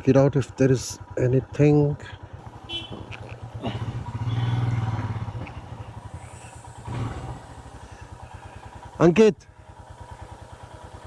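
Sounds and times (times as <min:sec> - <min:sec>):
motorcycle engine pulsing: 0:00.0 - 0:11.0.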